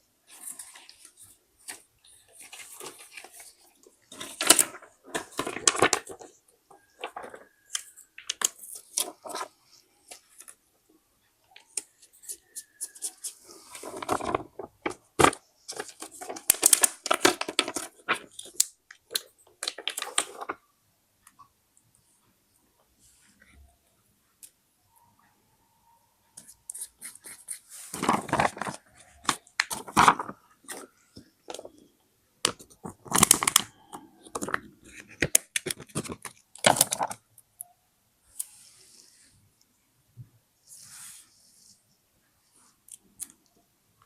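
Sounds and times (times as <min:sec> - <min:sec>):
paper rustling and crinkling: 0:00.3 - 0:10.6, 0:12.2 - 0:20.6, 0:27.7 - 0:31.8, 0:32.5 - 0:37.2.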